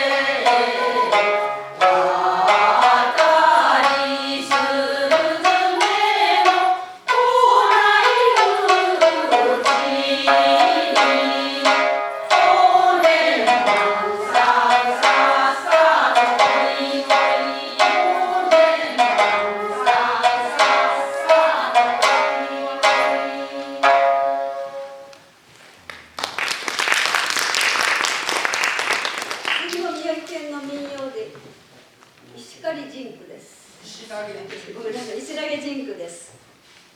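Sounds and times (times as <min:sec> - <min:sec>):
group singing folk song: 0:00.0 - 0:25.3
plucked shamisen: 0:00.0 - 0:25.3
audience applause: 0:25.9 - 0:29.8.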